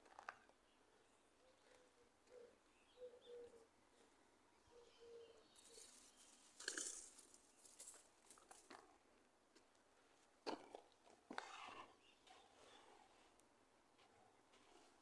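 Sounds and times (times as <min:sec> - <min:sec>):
faint bird cooing: 0:01.1 - 0:07.3.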